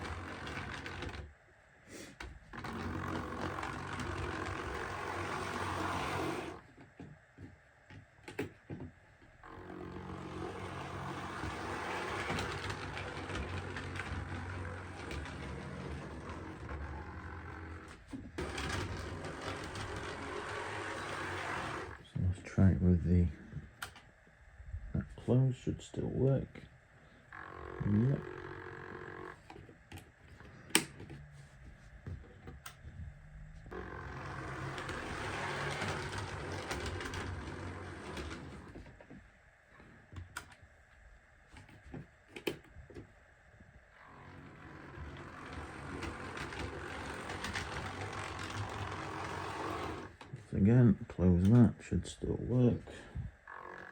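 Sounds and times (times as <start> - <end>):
wheels rattling over rails: 0.0 - 1.2, 9.6 - 22.0, 33.7 - 39.0, 44.1 - 50.4
model locomotive running: 2.6 - 6.6, 9.5 - 22.0, 27.4 - 29.4, 33.7 - 38.7, 44.0 - 50.2.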